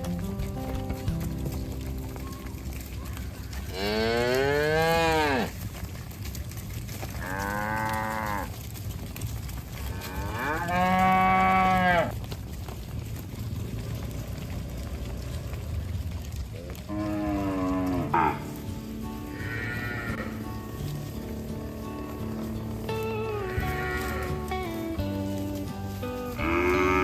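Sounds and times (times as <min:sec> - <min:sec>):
cattle mooing: 0:03.0 - 0:05.6, 0:07.2 - 0:08.6, 0:09.8 - 0:12.2, 0:13.8 - 0:15.9, 0:16.6 - 0:27.0.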